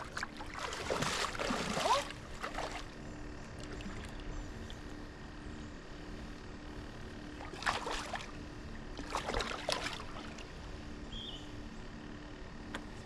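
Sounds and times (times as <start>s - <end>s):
water splashing: 0.0s - 3.0s, 7.4s - 8.3s, 9.0s - 10.4s
steady low hum: 0.0s - 13.0s.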